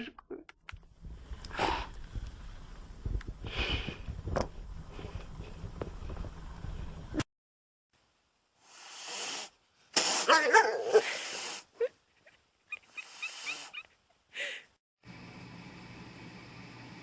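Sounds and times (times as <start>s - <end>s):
animal whining: 10.2s - 11.2s.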